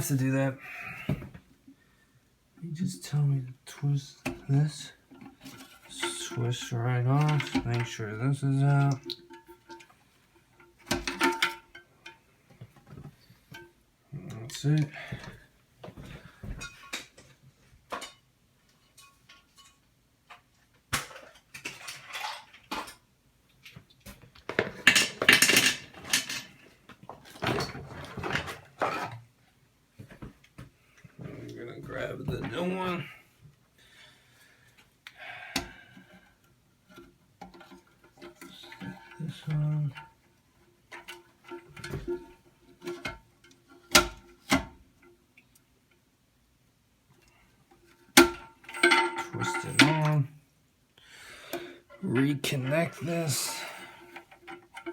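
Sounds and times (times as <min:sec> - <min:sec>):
plastic parts clattering and knocking: 0:03.1 - 0:13.8, 0:18.9 - 0:29.3, 0:36.9 - 0:45.2, 0:47.2 - 0:50.4, 0:51.5 - 0:54.9.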